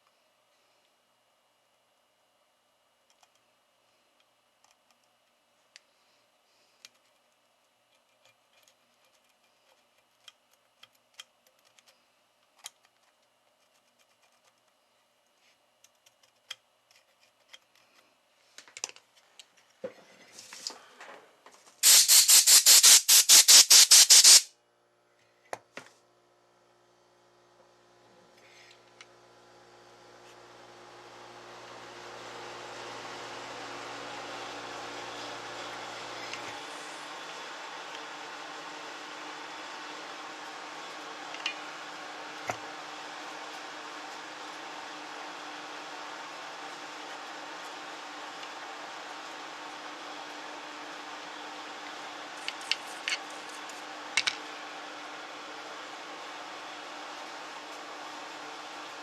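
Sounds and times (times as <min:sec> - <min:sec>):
small parts and tools tapping: 0:03.0 - 0:03.5, 0:06.8 - 0:20.0, 0:52.4 - 0:54.4
steady hiss: 0:21.8 - 0:24.5.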